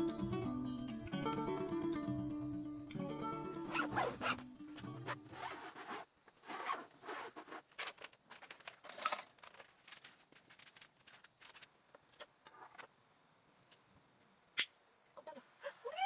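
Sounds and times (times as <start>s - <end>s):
guitar music: 0.0s - 5.4s
zipper being pulled: 3.7s - 8.0s.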